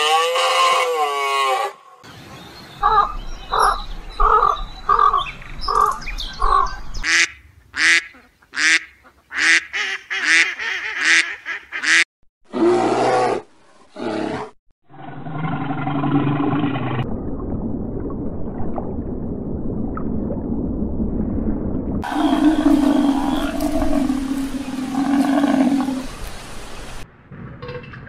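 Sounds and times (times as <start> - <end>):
duck quacking: 7.0 - 12.0.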